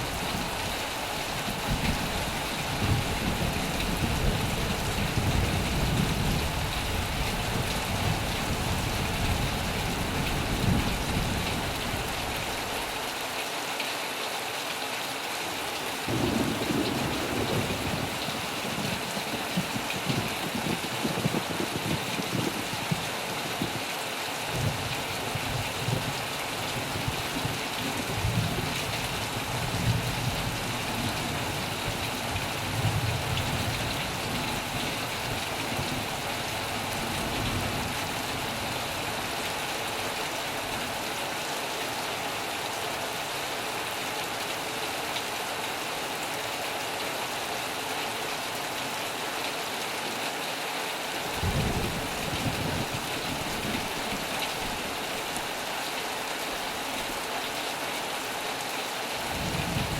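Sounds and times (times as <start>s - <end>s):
heavy rain on a metal roof: 0.0s - 59.9s
thunder rumbling: 16.0s - 23.0s, 59.3s - 59.9s.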